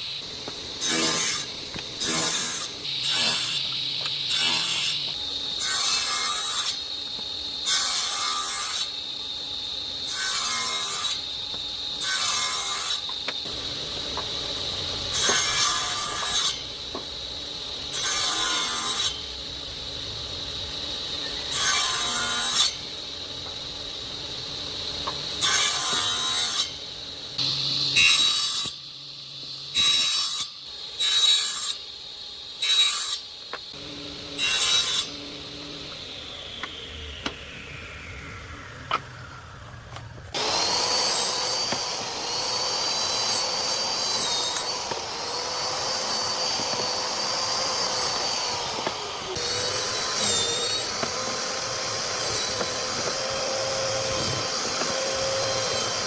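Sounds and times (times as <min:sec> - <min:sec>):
power tool cutting wood: 0:00.8 - 0:06.9, 0:15.1 - 0:16.6, 0:33.8 - 0:39.1, 0:40.0 - 0:56.0
motor running with high whine: 0:33.8 - 0:56.0
motor winding down: 0:35.1 - 0:42.9.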